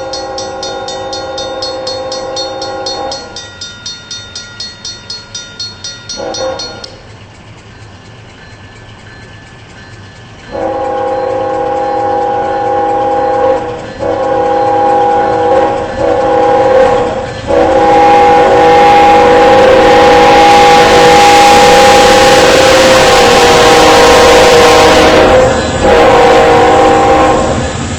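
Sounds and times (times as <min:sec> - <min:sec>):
train horn blasts: 0:00.0 - 0:03.4, 0:06.1 - 0:07.0, 0:10.5 - 0:27.8
rushing rail noise: 0:00.0 - 0:27.9.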